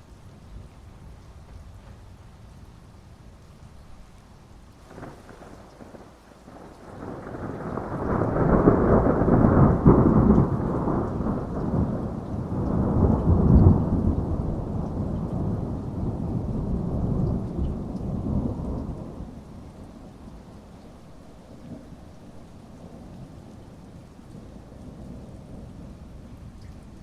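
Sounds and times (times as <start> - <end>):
thunder rumbling: 4.8 - 20.5
heavy rain hissing: 4.8 - 27.0.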